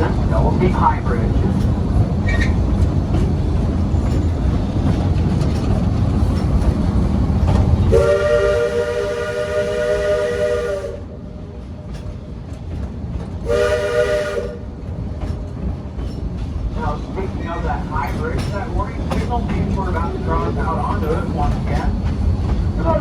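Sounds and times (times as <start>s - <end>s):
moving train rumbling: 0.0s - 23.0s
steam train chime whistle: 7.9s - 11.1s, 13.5s - 14.6s.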